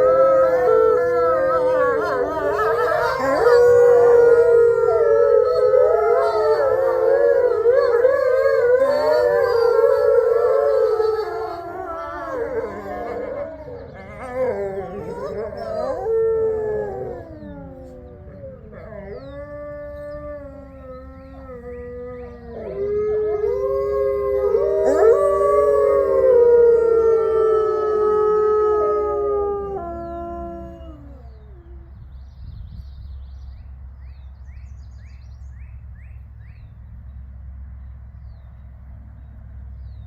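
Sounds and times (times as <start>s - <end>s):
wolves howling in chorus: 0.0s - 31.9s.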